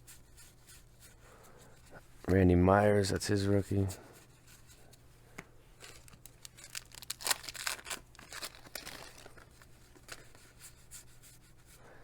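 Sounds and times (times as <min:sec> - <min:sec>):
trading cards and wrappers rustling: 0:05.8 - 0:10.5.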